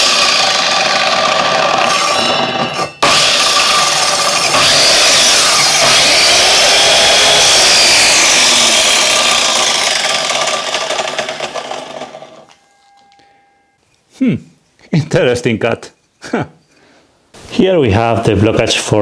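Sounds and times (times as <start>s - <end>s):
mitre saw running and winding down: 0.0s - 12.5s.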